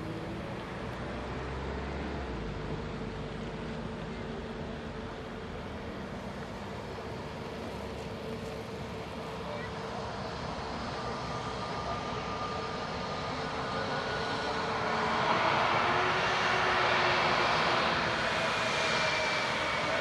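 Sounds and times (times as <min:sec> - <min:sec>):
turbofan engines whining: 0:00.0 - 0:20.0.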